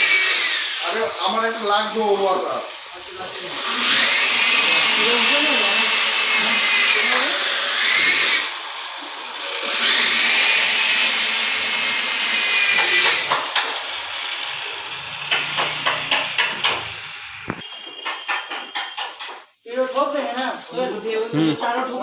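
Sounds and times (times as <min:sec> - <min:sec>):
power tool cutting tile: 0:00.0 - 0:19.4
tiles tapped into place: 0:17.5 - 0:19.4.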